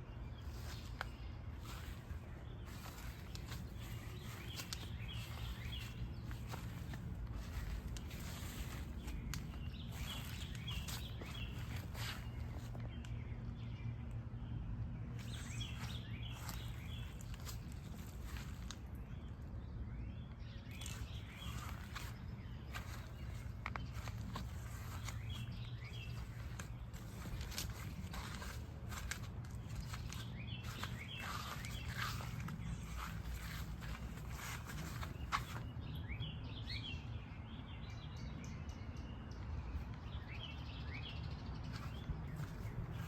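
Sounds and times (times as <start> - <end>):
footsteps outdoors: 0.0 - 14.3, 15.0 - 36.8, 39.3 - 43.0
steady low rumble: 0.0 - 36.1
small birds chirping: 0.0 - 43.0
rustling: 0.5 - 12.7, 20.8 - 35.7.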